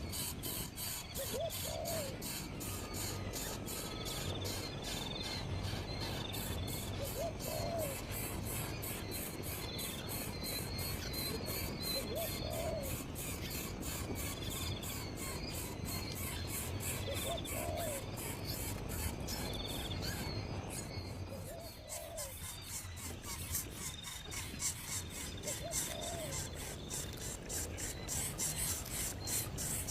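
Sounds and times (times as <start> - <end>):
insects trilling: 0.0 - 29.9
low hooting bird call: 25.4 - 26.6.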